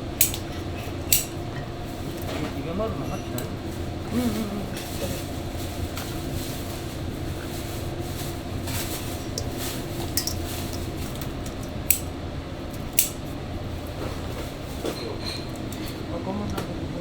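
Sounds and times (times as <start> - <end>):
steady low hum: 0.0 - 17.0
dishes and utensils clinking: 8.8 - 12.1, 14.8 - 16.0.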